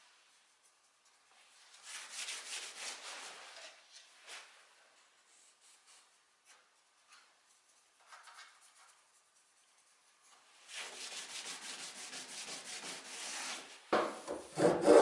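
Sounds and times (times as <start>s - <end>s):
hand rubbing wooden surface: 14.5s - 15.0s.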